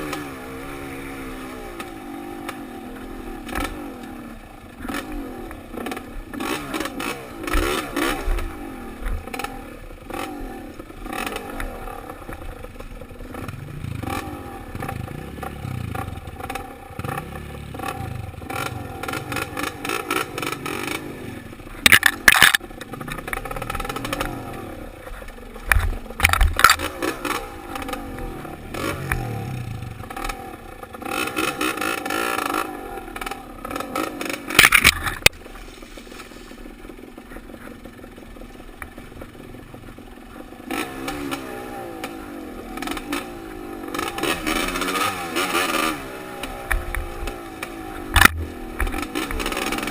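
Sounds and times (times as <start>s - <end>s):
dirt bike engine revving: 0.0s - 35.4s, 39.9s - 49.9s
bike clattering knocks and scrapes: 25.0s - 28.1s, 33.7s - 38.0s.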